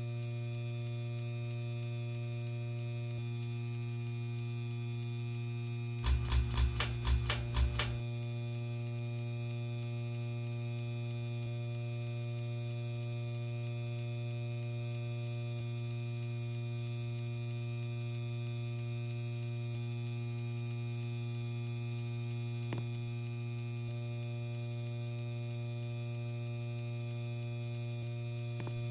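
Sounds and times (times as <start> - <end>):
ceiling fan motor humming: 6.0 - 8.0.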